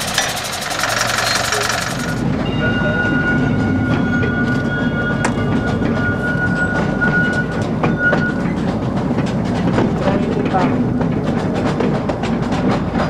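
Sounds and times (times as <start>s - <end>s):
train low rumble: 0.0s - 13.0s
wheels clacking on rails: 0.0s - 13.0s
high-pitched wheel squeal: 0.7s - 8.9s.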